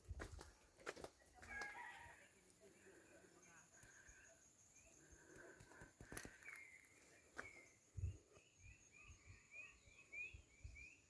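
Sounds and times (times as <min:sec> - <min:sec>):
bird chirping: 0:03.0 - 0:11.0.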